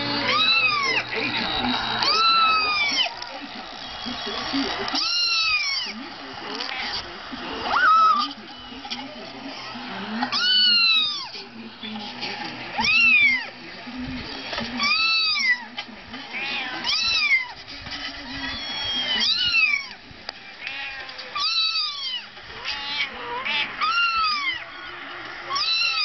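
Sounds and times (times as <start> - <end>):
cat meowing: 0.1 - 1.1, 2.0 - 3.1, 5.0 - 6.0, 7.7 - 8.3, 10.3 - 11.3, 12.8 - 13.5, 14.8 - 15.7, 16.3 - 17.6, 18.4 - 20.0, 20.6 - 24.9, 25.5 - 26.0.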